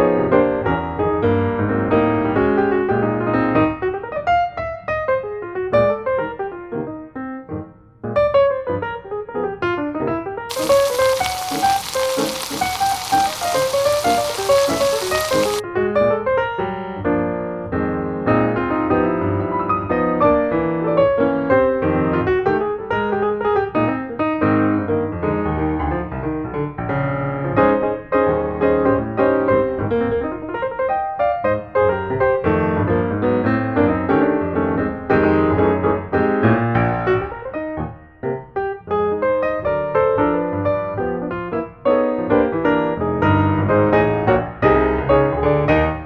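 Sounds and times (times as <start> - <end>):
piano melody with chords: 10.5 - 15.6.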